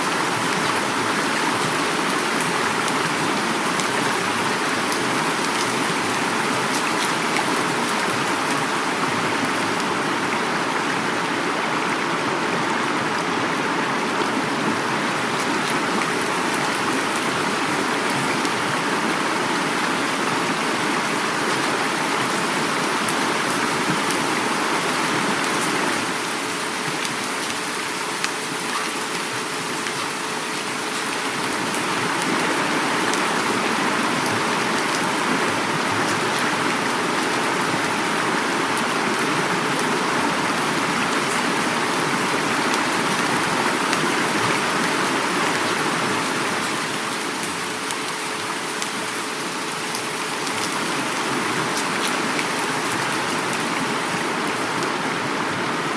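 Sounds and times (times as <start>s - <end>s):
heavy rain: 0.0s - 55.9s
river water flowing: 0.0s - 55.9s.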